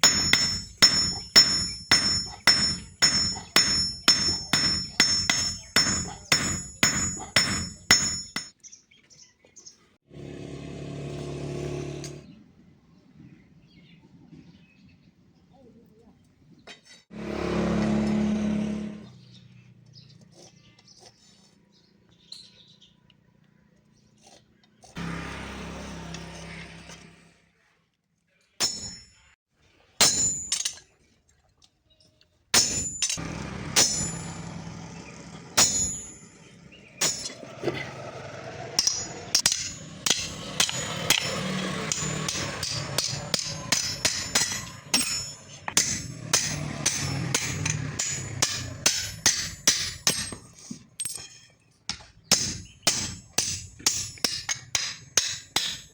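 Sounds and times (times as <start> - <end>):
hammer striking steel: 0.0 - 8.6, 28.6 - 29.4, 30.0 - 30.8, 32.6 - 34.6, 35.6 - 37.4, 38.8 - 55.9.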